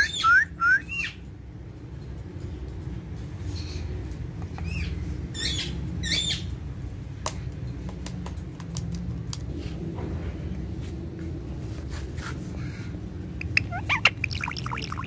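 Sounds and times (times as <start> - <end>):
steady low hum: 0.0 - 15.0
parakeet squawking: 13.4 - 15.0.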